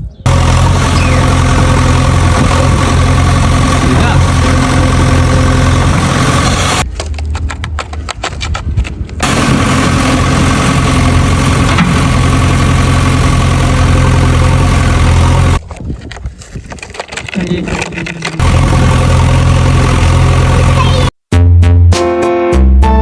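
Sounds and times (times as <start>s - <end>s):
engine idling hum: 0.3s - 6.8s, 9.2s - 15.6s, 17.4s - 21.1s.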